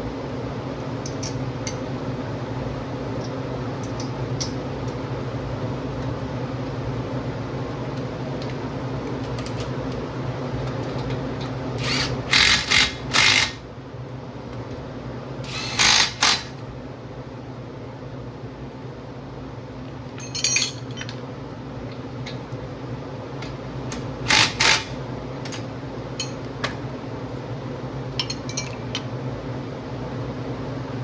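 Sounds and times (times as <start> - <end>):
steady low hum: 0.0 - 31.0
power tool bursts: 11.8 - 13.6, 15.5 - 16.6, 24.2 - 25.0.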